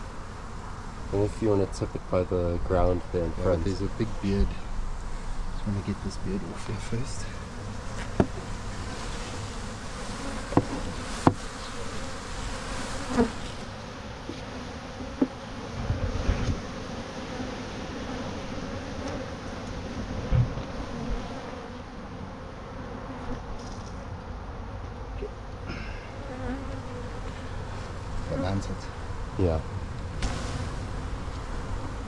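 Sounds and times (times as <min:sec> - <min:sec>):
bees buzzing: 0:00.0 - 0:32.0
knocks and thumps on hive: 0:07.8 - 0:09.1, 0:10.0 - 0:11.6, 0:14.2 - 0:16.8, 0:19.0 - 0:21.3.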